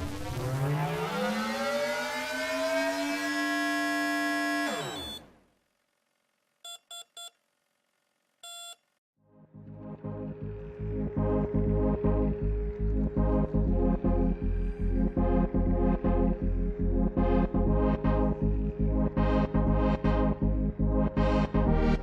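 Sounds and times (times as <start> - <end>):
rising electronic sweep: 0.0 - 5.2, 9.5 - 22.0
short beeps: 4.7 - 5.3, 6.7 - 7.4, 8.4 - 8.9.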